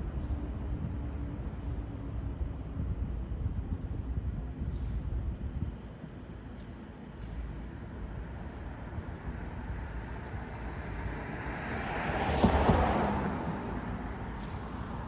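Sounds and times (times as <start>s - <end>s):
low traffic rumble: 0.0s - 15.0s
vehicle passing close by: 10.7s - 14.8s.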